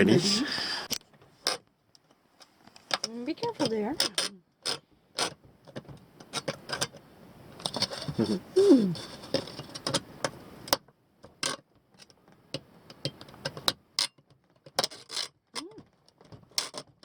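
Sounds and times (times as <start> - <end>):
background hiss: 0.0 - 1.0, 7.2 - 10.8.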